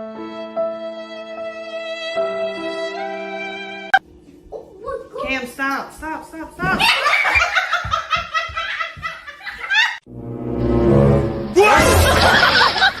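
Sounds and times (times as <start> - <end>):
person laughing in bursts: 6.7 - 10.0, 11.8 - 13.0.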